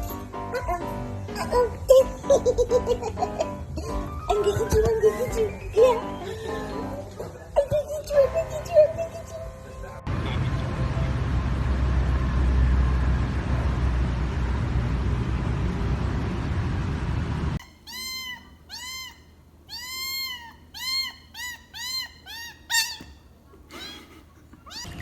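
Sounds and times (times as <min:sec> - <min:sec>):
loud steady rushing noise: 0:10.1 - 0:17.6
cat meowing: 0:17.6 - 0:25.0.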